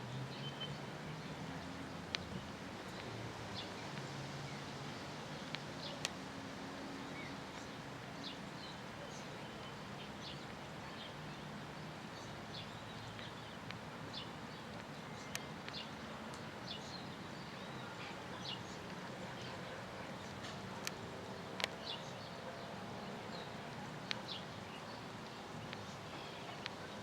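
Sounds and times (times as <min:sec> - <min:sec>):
small birds chirping: 0:07.0 - 0:27.0.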